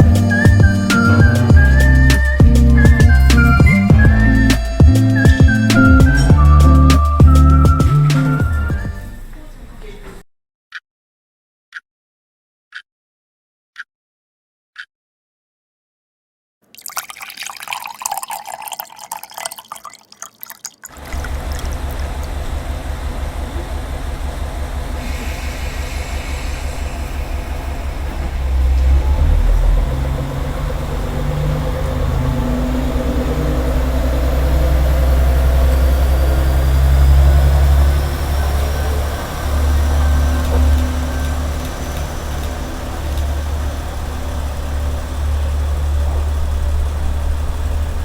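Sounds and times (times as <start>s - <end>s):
vehicle engine rumbling: 0.0s - 10.2s, 20.9s - 48.0s.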